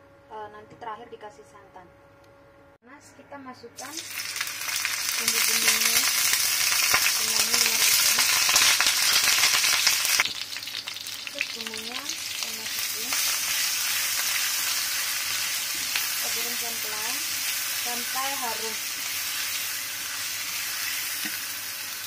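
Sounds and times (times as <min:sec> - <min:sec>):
spices sizzling in hot oil: 0:03.8 - 0:22.0.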